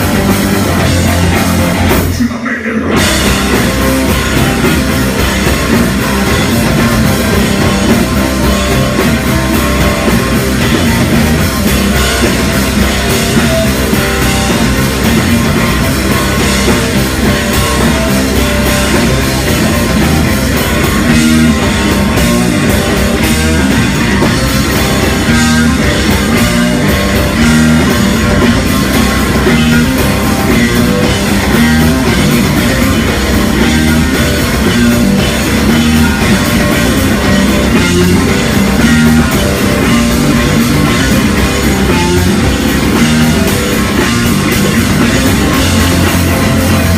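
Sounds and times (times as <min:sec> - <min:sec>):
drum kit: 0:00.0 - 0:46.9
electric guitar: 0:00.0 - 0:46.9.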